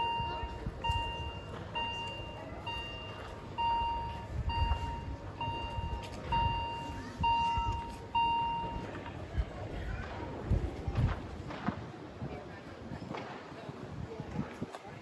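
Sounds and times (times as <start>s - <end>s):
crossing signal beeping: 0.0s - 9.1s.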